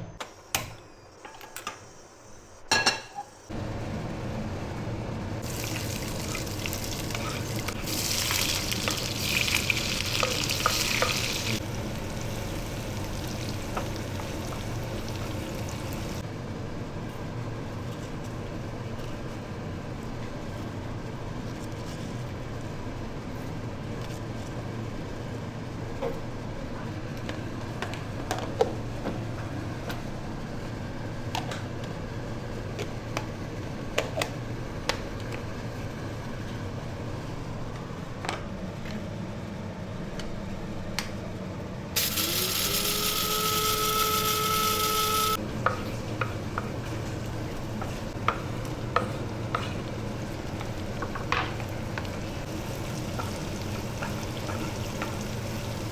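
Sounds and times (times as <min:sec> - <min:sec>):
food sizzling in a pan: 0:05.4 - 0:16.2, 0:42.0 - 0:55.9.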